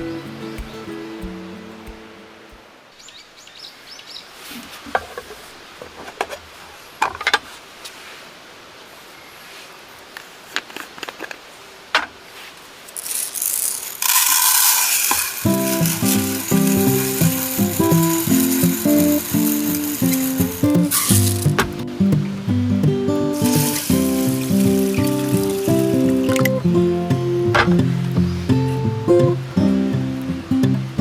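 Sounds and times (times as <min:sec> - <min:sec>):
loud steady hiss: 0:13.0 - 0:30.8.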